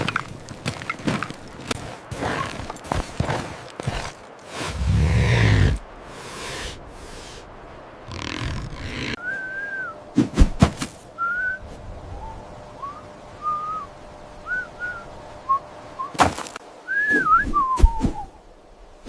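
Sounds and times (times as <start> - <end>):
gliding whistled notes: 9.2 - 10.0, 11.2 - 16.2, 16.8 - 18.4.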